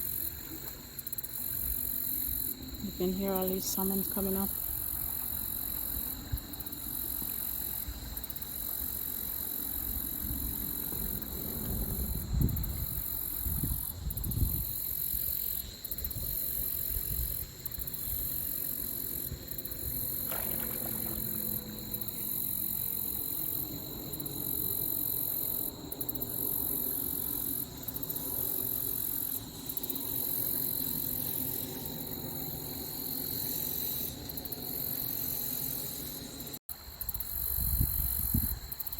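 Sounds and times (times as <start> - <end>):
creek water: 18.7 - 25.8
salmon splashing: 20.3 - 21.8.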